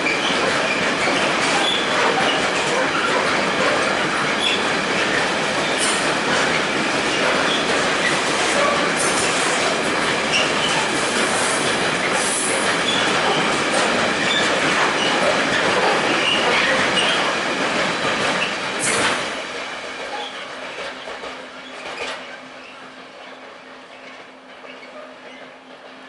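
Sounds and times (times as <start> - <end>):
train wheels on rails: 0.0 - 26.0.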